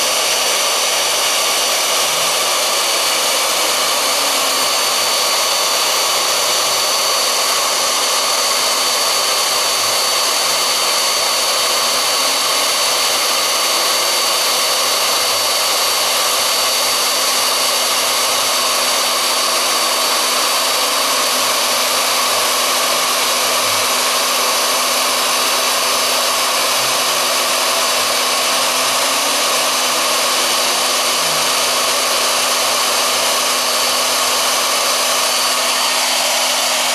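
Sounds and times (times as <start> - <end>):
milling spindle motor whine: 0.0 - 36.9
stepper motor tones: 0.0 - 36.9.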